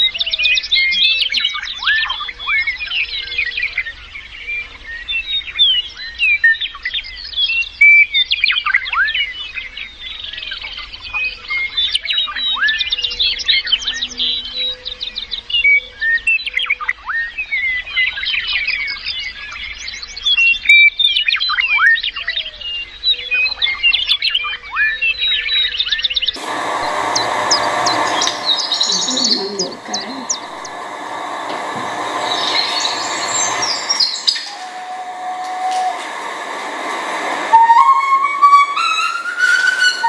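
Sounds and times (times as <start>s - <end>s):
birds chirping: 26.4s - 40.0s.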